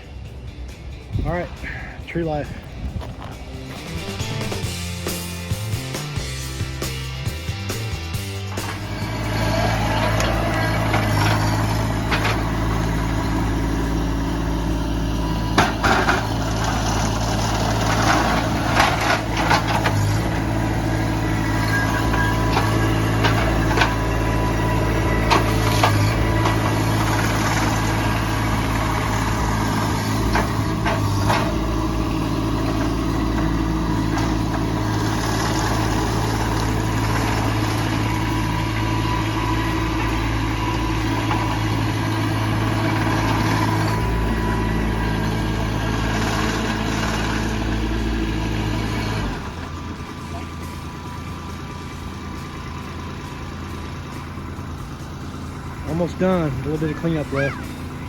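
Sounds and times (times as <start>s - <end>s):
truck engine idling: 0.0s - 58.0s
sharp knocks and cracks: 15.6s - 16.9s.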